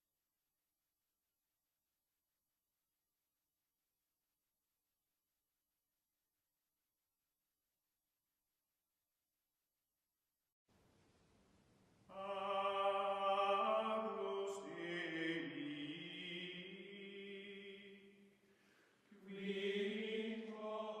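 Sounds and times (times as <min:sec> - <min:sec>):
chant-like voices singing: 0:12.1 - 0:18.3, 0:19.1 - 0:21.0.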